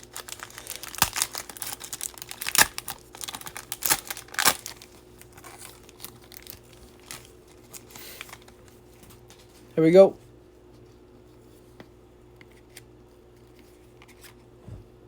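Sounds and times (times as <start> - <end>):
card pack wrapper torn crinkling: 0.0 - 8.7.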